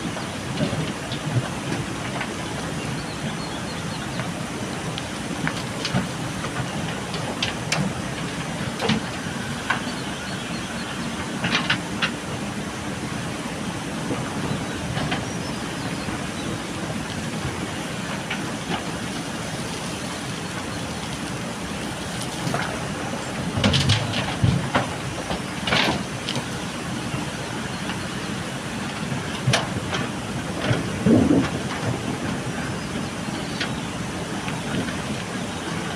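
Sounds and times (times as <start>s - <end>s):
backhoe diesel engine running: 0.0s - 35.9s
clanks and rattles on gravel: 5.4s - 12.5s, 17.0s - 28.2s, 28.8s - 33.8s.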